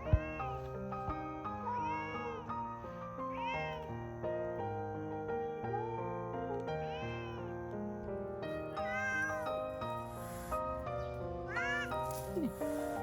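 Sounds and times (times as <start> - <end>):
cat meowing: 0.0 - 0.8, 1.6 - 2.5, 3.2 - 3.9, 6.6 - 7.5, 8.5 - 13.0
gentle background music: 0.0 - 13.0.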